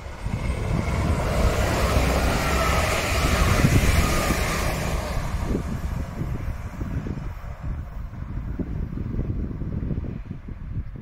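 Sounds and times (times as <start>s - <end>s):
train engines and wheels rumbling: 0.0s - 11.0s.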